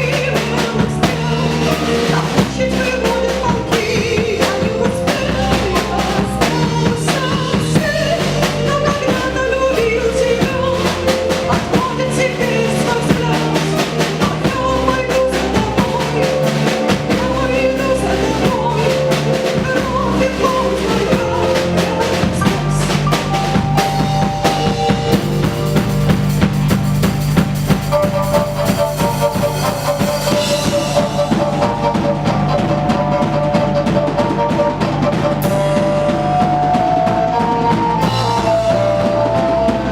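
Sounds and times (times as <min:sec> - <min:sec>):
bass: 0:00.0 - 0:39.9
drum kit playing: 0:00.0 - 0:39.9
sustained melody notes: 0:00.0 - 0:39.9.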